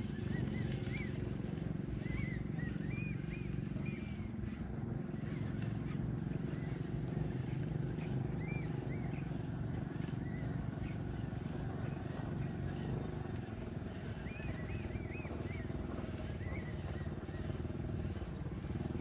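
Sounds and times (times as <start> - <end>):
birds chirping: 0.0 - 19.0
steady low rumble: 0.0 - 19.0.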